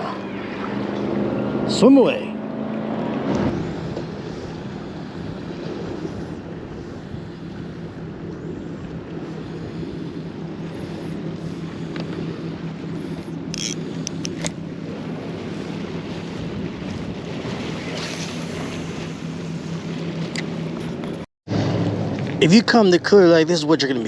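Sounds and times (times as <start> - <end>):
boat motor humming: 0.0 - 24.0
waves washing: 0.0 - 24.0
wind on microphone: 3.2 - 19.6.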